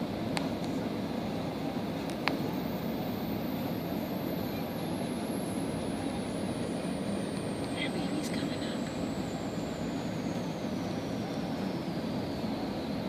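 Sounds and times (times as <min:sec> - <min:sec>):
car engine running: 0:00.0 - 0:13.0
faint high whine: 0:00.0 - 0:13.0.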